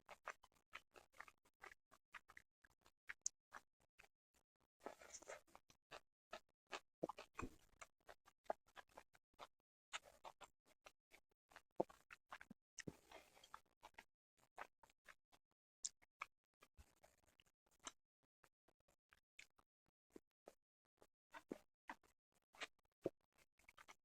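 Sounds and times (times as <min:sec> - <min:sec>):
wet chewing mouth clicks: 0:00.1 - 0:02.4, 0:04.8 - 0:10.4, 0:11.5 - 0:14.0.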